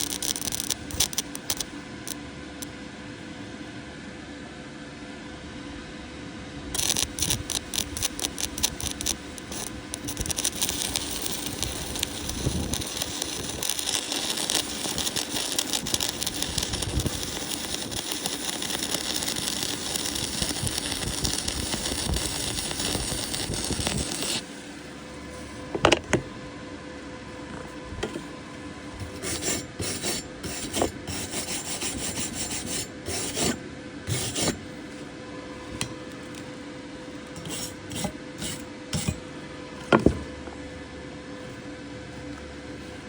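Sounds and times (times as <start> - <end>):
electric arc welding crackling: 0.0 - 1.7, 6.8 - 24.9, 29.0 - 34.6.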